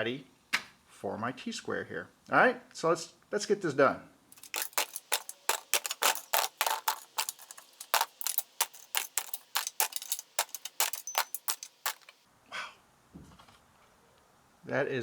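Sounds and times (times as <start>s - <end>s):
small tools clattering: 4.4s - 12.2s.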